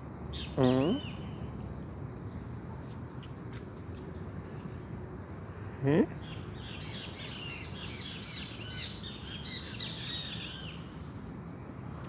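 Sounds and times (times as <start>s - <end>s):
bird chirping: 6.2s - 11.0s.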